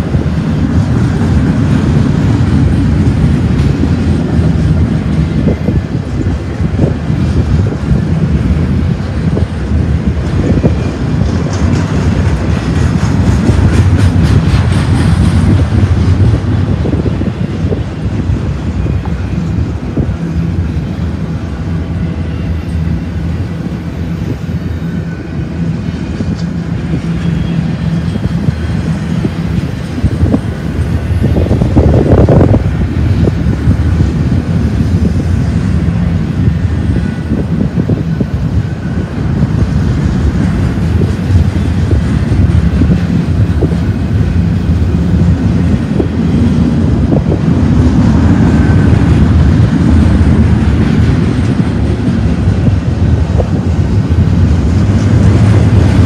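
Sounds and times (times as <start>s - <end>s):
freight train rumbling past: 0.0s - 56.0s
rapid train wheel clicks: 10.1s - 16.5s.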